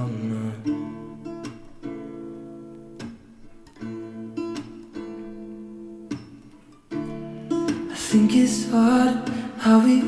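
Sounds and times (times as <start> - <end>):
person singing: 0.0 - 1.0, 7.9 - 10.0
strummed acoustic guitar: 0.0 - 10.0.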